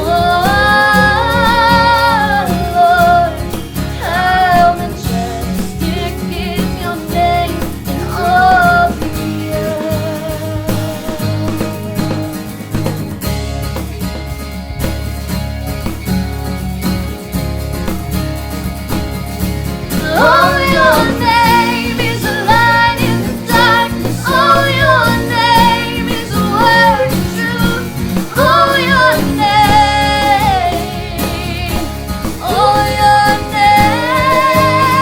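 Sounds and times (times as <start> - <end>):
person singing worship song: 0.0 - 12.1, 19.9 - 35.0
instrumental accompaniment: 0.0 - 35.0.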